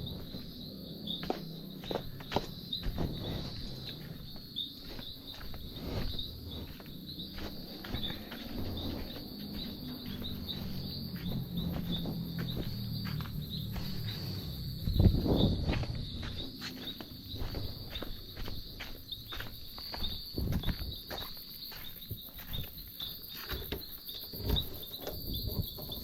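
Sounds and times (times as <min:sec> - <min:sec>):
crickets chirping: 0:00.0 - 0:26.0
low rumble: 0:05.3 - 0:18.1.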